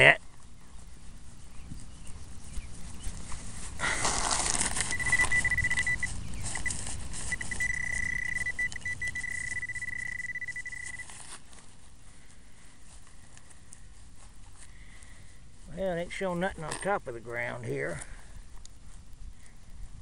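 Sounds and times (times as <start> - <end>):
rough scraping: 2.2 - 11.7
metal detector alert beeps: 4.6 - 11.2.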